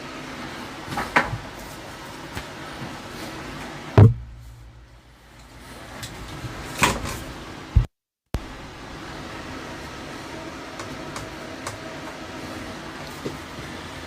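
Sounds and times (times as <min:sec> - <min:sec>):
steady fan-like hum: 0:00.0 - 0:14.0
parts knocking and clunking: 0:04.0 - 0:07.2.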